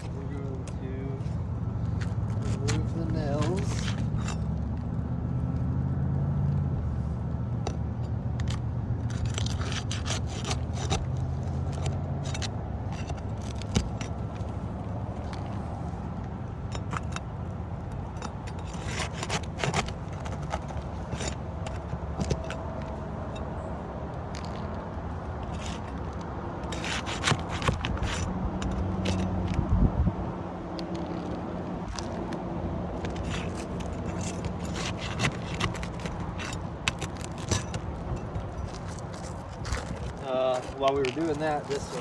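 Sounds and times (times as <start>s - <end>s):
metal tool scraping shingles: 0.0s - 4.6s, 7.7s - 29.6s, 31.9s - 42.0s
steady low rumble: 28.2s - 34.7s.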